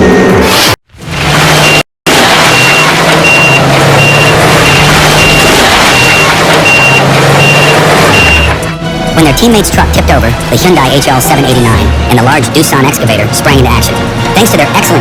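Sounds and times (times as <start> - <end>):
diesel engine running: 0.0 - 15.0
reversing alarm beeping: 2.5 - 8.7.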